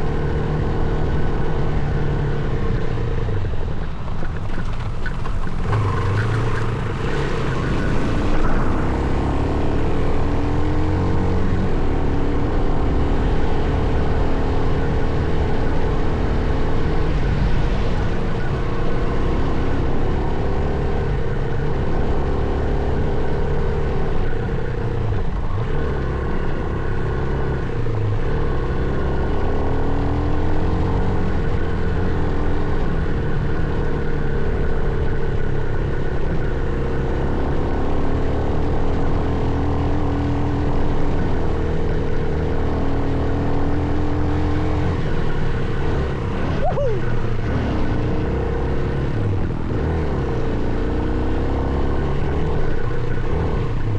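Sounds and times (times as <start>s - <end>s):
motocross bike engine: 0.0s - 53.9s
rough-ground noise: 2.0s - 12.1s
wind noise: 3.4s - 11.5s.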